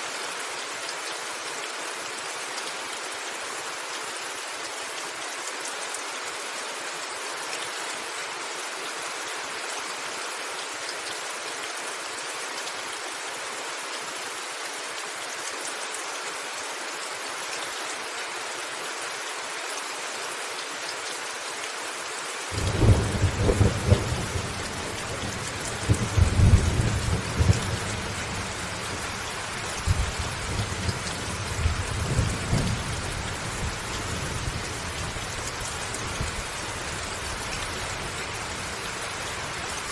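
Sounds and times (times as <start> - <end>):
steady rain: 0.0 - 39.9
thunder rumbling: 22.6 - 29.0.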